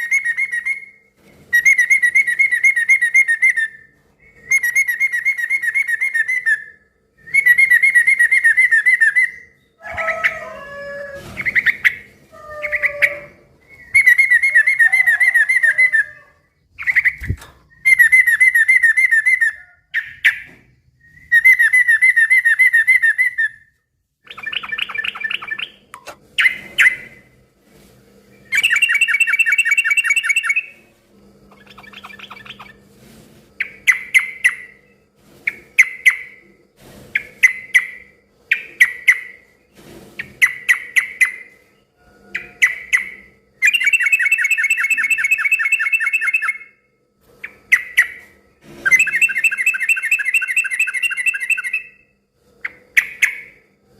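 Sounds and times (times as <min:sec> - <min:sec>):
bird singing rapid chatter: 0:24.2 - 0:27.4, 0:28.3 - 0:30.9, 0:31.5 - 0:32.8, 0:42.4 - 0:46.8, 0:48.9 - 0:52.0.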